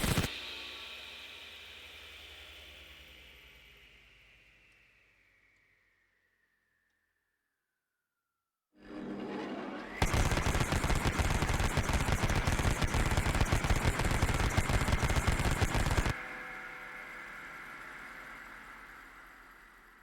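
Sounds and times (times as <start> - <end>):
hum after gunfire: 10.0 - 16.1.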